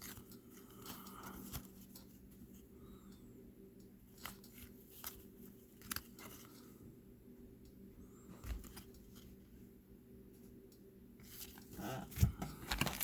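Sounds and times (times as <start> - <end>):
low steady hum: 0.0 - 13.0
cards snapping and rustling: 4.2 - 6.6, 11.3 - 13.0.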